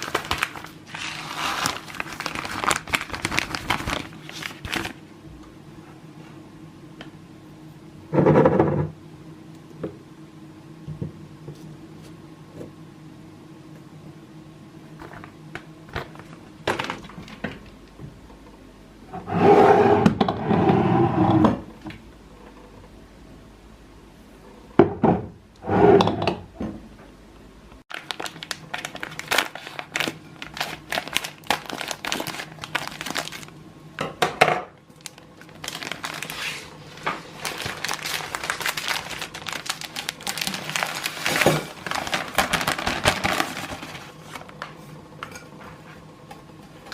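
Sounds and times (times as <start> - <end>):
plastic packaging crinkling: 0.0 - 5.0, 27.9 - 33.6, 34.9 - 44.6.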